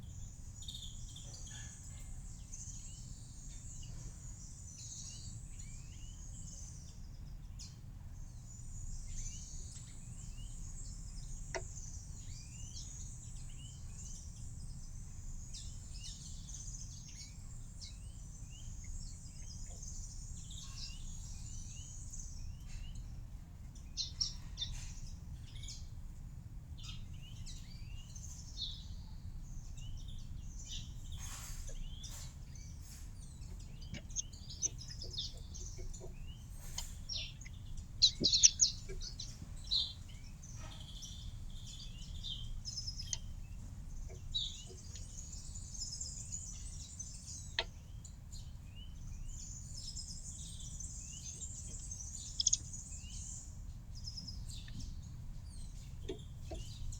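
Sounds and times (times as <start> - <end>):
small birds chirping: 0.0 - 56.9
low background rumble: 31.7 - 56.9.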